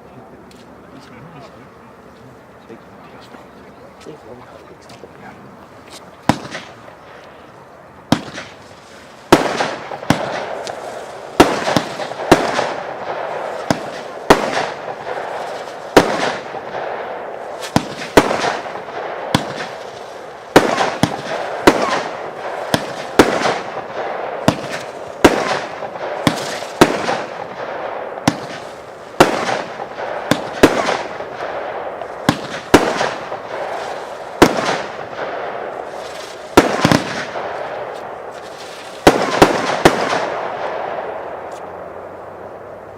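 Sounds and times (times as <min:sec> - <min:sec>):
firework bangs: 0:04.0 - 0:07.2, 0:08.0 - 0:42.6
firework hiss: 0:08.0 - 0:40.6.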